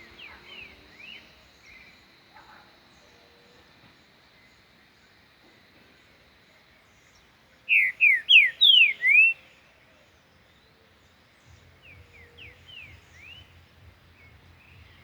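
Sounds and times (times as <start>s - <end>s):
bird singing whistled notes: 0.0s - 2.1s, 7.0s - 15.0s.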